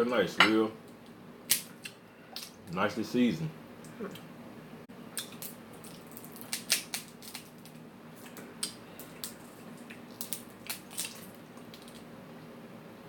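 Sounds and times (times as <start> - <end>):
crab shells cracking: 1.5 - 2.6, 5.2 - 12.1.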